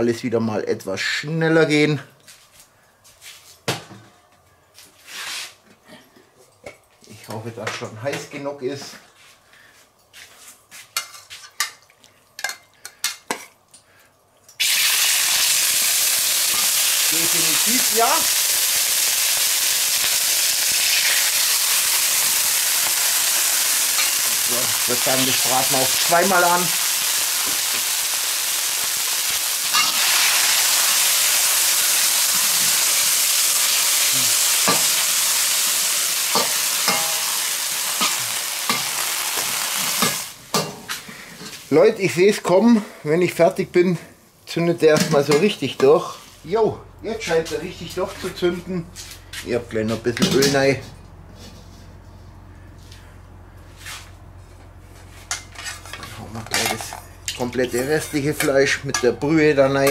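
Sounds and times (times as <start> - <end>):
chicken sizzling in hot oil: 14.6 - 40.5
metal spatula scraping bowl and wok: 36.3 - 40.8, 55.2 - 57.0.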